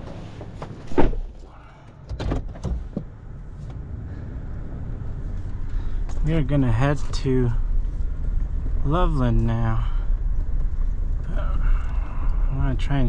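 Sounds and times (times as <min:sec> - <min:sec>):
vehicle door shutting: 0:00.0 - 0:03.8
vehicle engine idling: 0:00.0 - 0:13.0.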